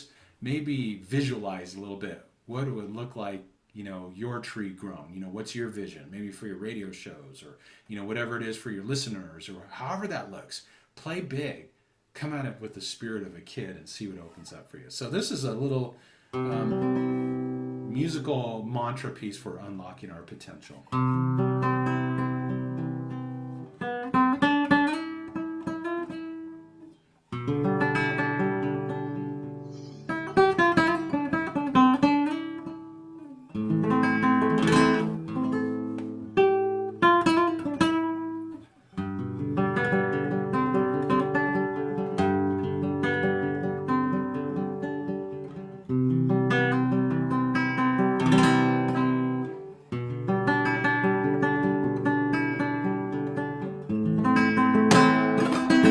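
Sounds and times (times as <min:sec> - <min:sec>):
acoustic guitar strumming: 0:16.4 - 0:18.4, 0:20.9 - 0:55.9.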